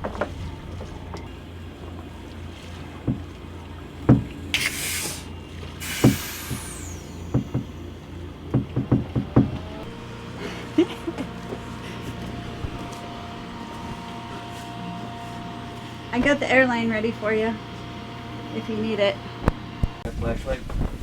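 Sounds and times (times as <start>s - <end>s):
low steady hum: 0.0s - 21.0s
diving gear knocks and clunks: 3.0s - 3.4s, 4.0s - 4.5s, 8.5s - 9.9s
hissing air bursts: 4.6s - 8.0s.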